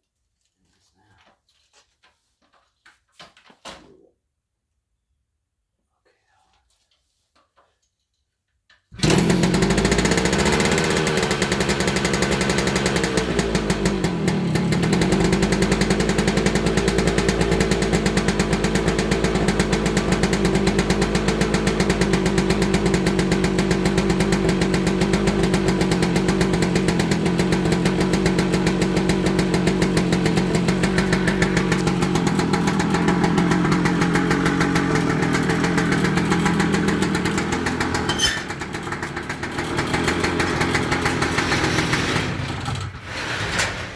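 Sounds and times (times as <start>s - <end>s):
two-stroke engine revving and idling: 8.9s - 43.0s.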